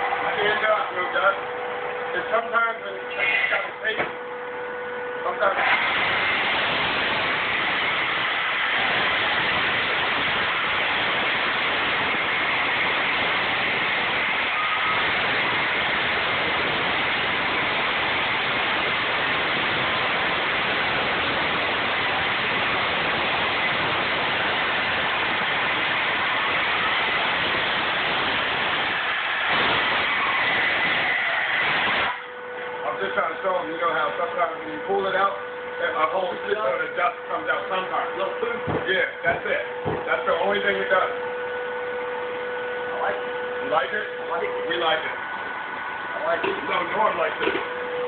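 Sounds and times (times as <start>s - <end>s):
power saw running: 5.2s - 34.2s.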